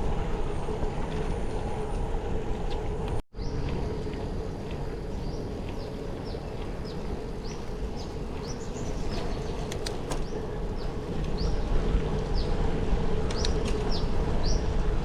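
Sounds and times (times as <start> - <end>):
low rumble: 0.0 - 15.0
birds chirping: 3.4 - 14.8.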